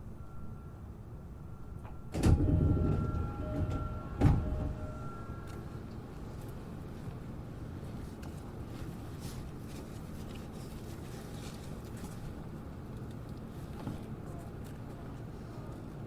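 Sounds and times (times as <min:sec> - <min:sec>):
faint steady tones: 0:00.0 - 0:08.2
low hum of stopped train car: 0:00.0 - 0:16.0
sliding train doors thudding: 0:01.8 - 0:05.3.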